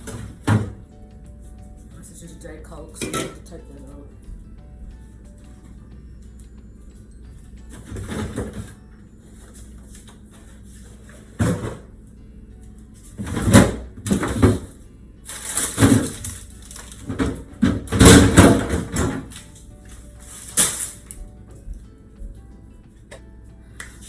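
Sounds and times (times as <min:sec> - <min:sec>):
faint background music: 0:00.0 - 0:24.0
containers and bottles clattering: 0:03.0 - 0:03.6, 0:07.7 - 0:08.8, 0:09.5 - 0:11.9, 0:13.1 - 0:14.7, 0:15.3 - 0:19.6, 0:20.2 - 0:21.2
rustling: 0:15.3 - 0:17.4, 0:18.9 - 0:21.2.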